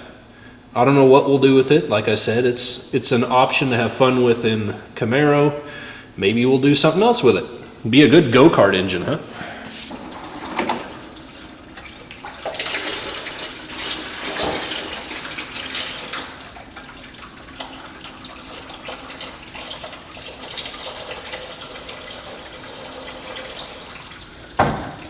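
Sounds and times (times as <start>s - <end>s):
liquid running and splashing: 9.9s - 25.0s.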